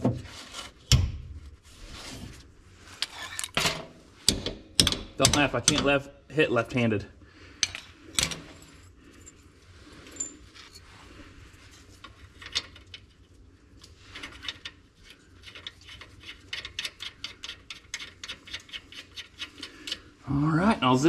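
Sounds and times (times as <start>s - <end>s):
hand tools clinking on metal: 3.0s - 3.8s, 7.6s - 8.6s.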